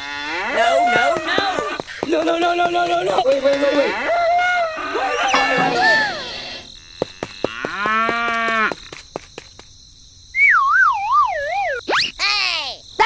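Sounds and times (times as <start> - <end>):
cow mooing: 0.0 - 1.6, 3.1 - 6.7
voice-like sounds: 0.5 - 1.8, 3.0 - 6.6.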